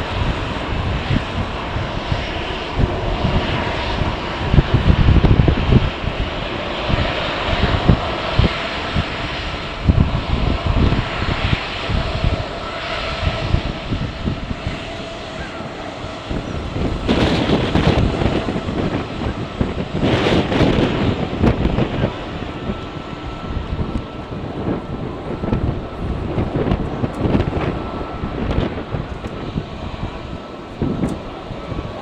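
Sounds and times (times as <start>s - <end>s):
jet engines whining: 0.0s - 32.0s
wind buffeting microphone: 0.0s - 32.0s.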